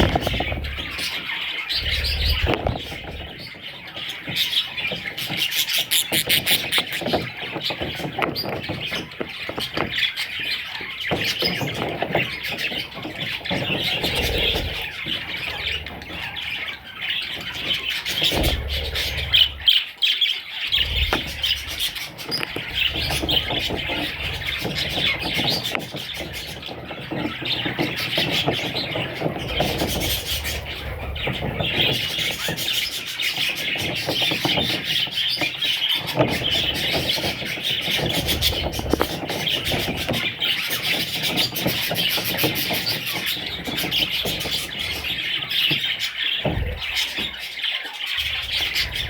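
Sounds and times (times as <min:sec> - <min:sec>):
low thumps: 0:00.0 - 0:01.1, 0:20.7 - 0:25.5
budgerigars chirping and chattering: 0:00.0 - 0:49.0.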